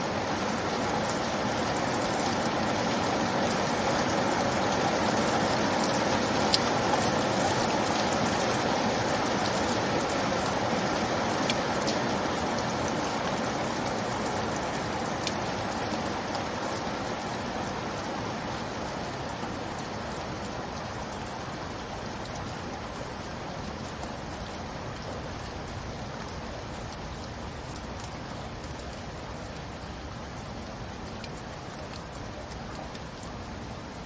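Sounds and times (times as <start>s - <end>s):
rain hiss: 0.0s - 34.0s
drip ticks: 5.8s - 8.5s, 9.3s - 14.4s, 15.1s - 17.8s, 18.5s - 34.0s.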